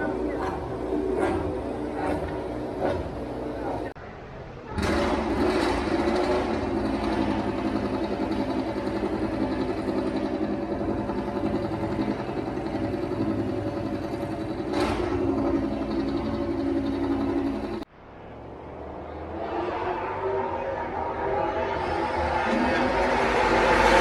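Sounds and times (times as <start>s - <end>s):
vehicle engine running: 0.0s - 4.0s, 4.8s - 17.9s.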